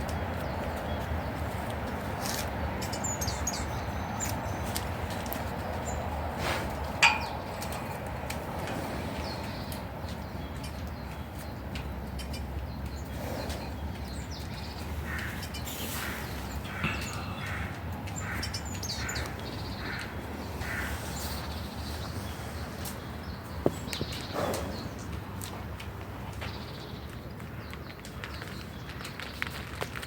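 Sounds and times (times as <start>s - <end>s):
small birds chirping: 0.0s - 29.8s
bird calling: 12.2s - 25.2s.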